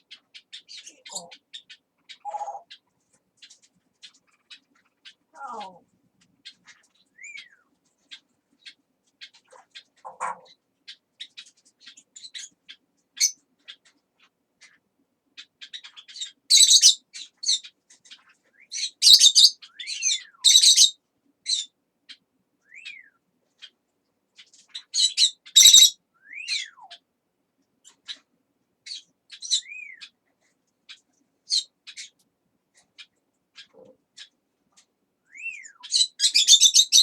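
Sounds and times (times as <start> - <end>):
parrots squawking and chirping: 0.1 - 2.8, 3.4 - 7.5, 8.1 - 12.6, 15.6 - 21.7, 24.4 - 27.0, 30.9 - 32.2, 33.0 - 34.4, 35.3 - 37.0.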